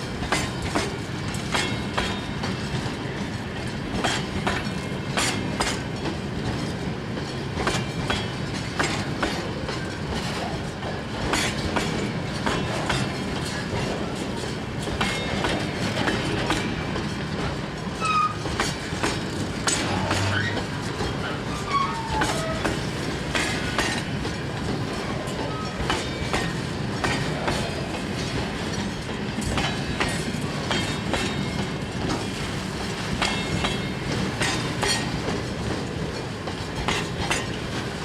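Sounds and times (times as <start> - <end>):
freight train rumbling past: 0.0 - 38.0
wheels clicking over rail joints: 0.1 - 38.0
train wheel squeals: 17.8 - 19.0, 19.6 - 24.0, 24.9 - 27.6, 33.2 - 35.4.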